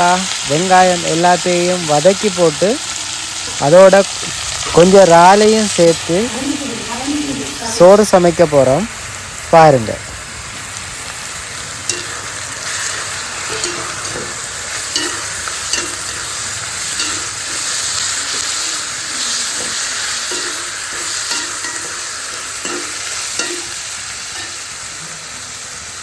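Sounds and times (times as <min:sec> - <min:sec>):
food sizzling in hot oil: 0:00.0 - 0:26.0
spoon knocking against pan: 0:11.9 - 0:12.2, 0:13.5 - 0:16.3, 0:16.9 - 0:18.6, 0:19.5 - 0:23.8.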